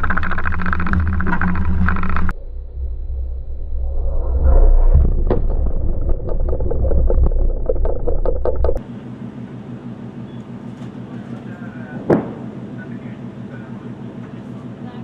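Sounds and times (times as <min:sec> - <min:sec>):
sharp crackles: 0:00.0 - 0:02.3, 0:04.8 - 0:08.8
rocket motor rumble: 0:00.0 - 0:14.5.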